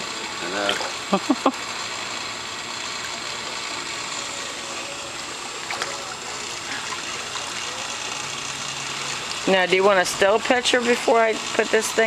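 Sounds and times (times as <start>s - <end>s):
running water rushing: 5.2s - 8.1s.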